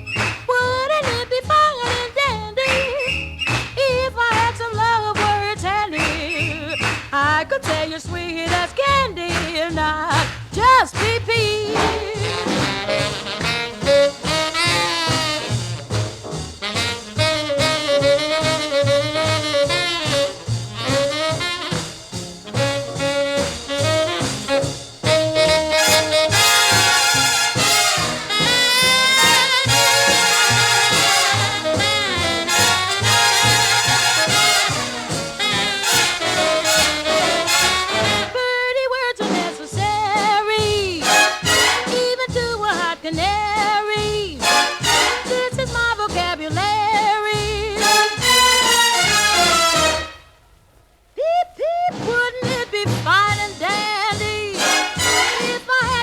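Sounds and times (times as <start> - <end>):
swing jazz big band: 0.0 - 50.3, 51.7 - 56.0
person singing: 7.5 - 13.3, 38.3 - 41.2.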